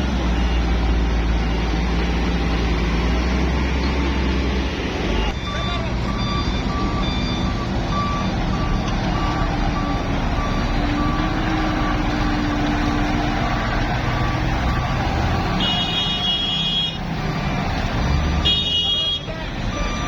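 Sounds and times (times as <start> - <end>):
diesel truck engine running: 0.0 - 20.0
reversing alarm beeping: 5.2 - 13.5, 19.7 - 20.0.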